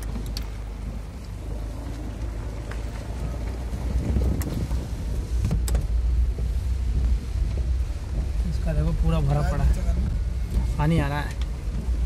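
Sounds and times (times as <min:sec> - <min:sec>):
wind rumbling on microphone: 0:00.0 - 0:12.0
heavy rain: 0:03.0 - 0:12.0.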